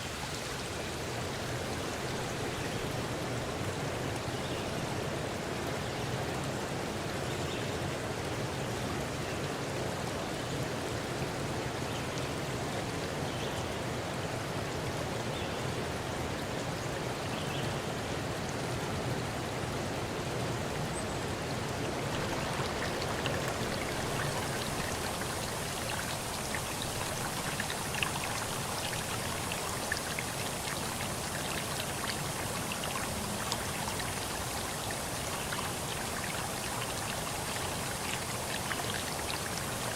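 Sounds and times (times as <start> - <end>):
rushing water: 0.0 - 39.9
small drip-like ticks: 21.9 - 39.9.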